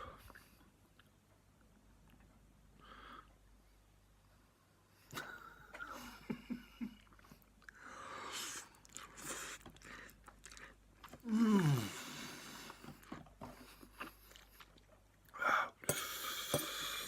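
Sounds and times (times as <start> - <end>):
mouth clicks and chewing: 8.8 - 11.3, 12.7 - 16.1.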